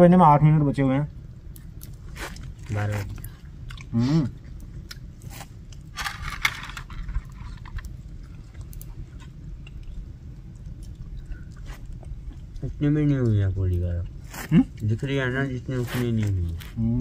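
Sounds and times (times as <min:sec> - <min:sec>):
person chewing crunchy food: 0:01.6 - 0:06.2, 0:06.9 - 0:12.8.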